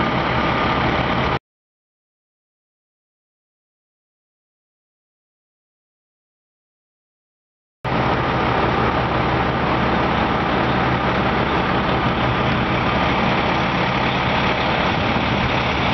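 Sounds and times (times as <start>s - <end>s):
heavy truck engine idling: 0.0s - 1.4s, 7.9s - 15.9s.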